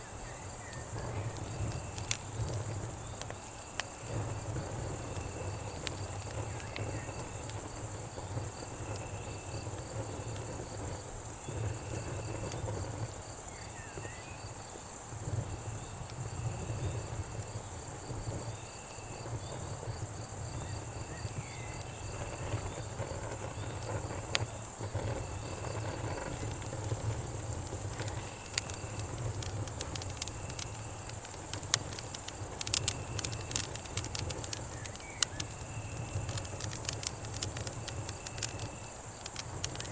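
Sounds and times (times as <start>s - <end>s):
short insect chirp: 0.0s - 2.8s, 13.3s - 14.6s, 20.4s - 24.0s, 24.6s - 39.9s
campfire crackling: 0.0s - 39.9s
cicadas and crickets droning: 0.0s - 39.9s.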